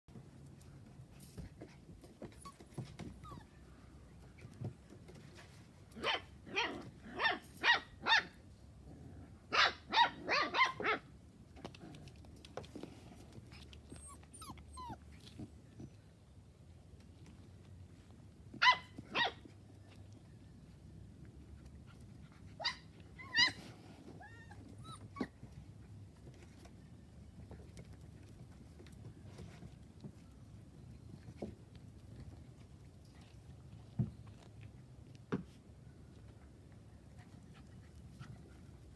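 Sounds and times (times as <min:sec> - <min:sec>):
puppies yipping and whimpering: 0:13.8 - 0:15.1, 0:22.6 - 0:25.4.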